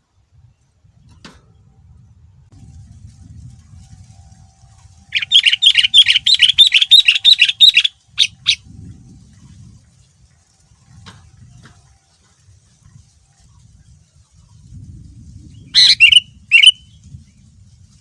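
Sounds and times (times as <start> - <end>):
faint low rumble: 0.0 - 6.2
bird chattering song: 5.1 - 8.6, 15.8 - 16.9.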